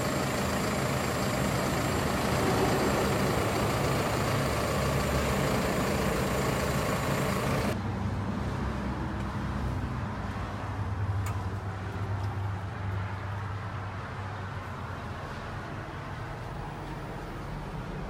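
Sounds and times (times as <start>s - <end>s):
higher-pitched engine noise: 0.0s - 7.8s
tractor diesel engine running: 0.0s - 7.8s.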